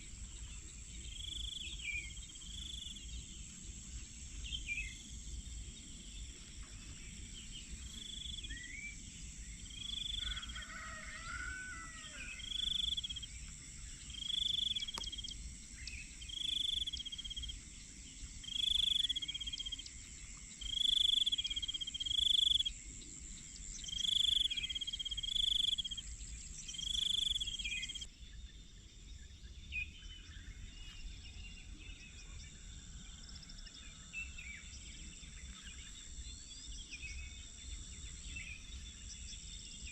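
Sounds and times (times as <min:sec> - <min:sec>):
high-pitched insect drone: 0:07.8 - 0:28.1.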